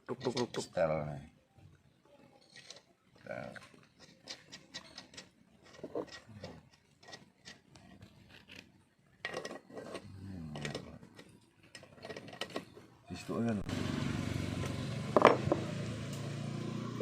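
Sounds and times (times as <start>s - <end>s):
metal parts clinking and scraping: 2.4s - 13.0s.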